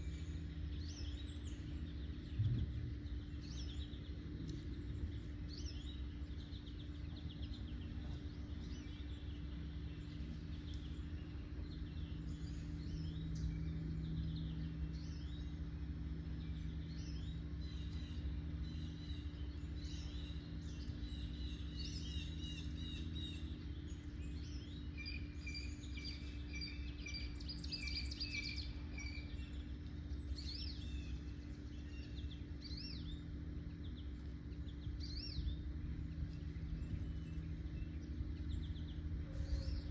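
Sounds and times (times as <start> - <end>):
low background hum: 0.0 - 39.9
songbirds chirping and singing: 0.0 - 39.9.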